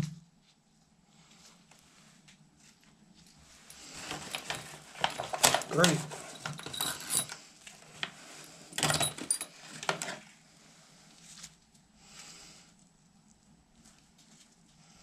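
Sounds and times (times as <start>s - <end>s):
faint rustling: 0.4s - 15.0s
tools and parts clicking: 4.0s - 10.2s.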